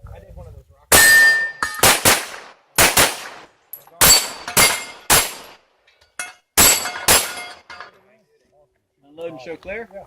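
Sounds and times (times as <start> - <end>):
pistol shots with echo: 0.9 - 5.6, 6.6 - 7.6.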